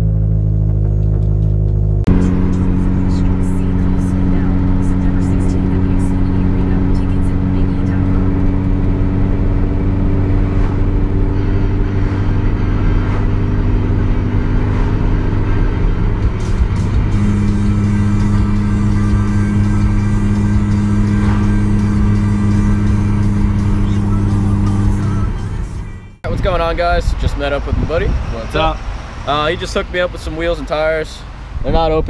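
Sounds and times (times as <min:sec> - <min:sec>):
car engine droning: 0:00.0 - 0:32.0
road and tyre noise: 0:00.0 - 0:32.0.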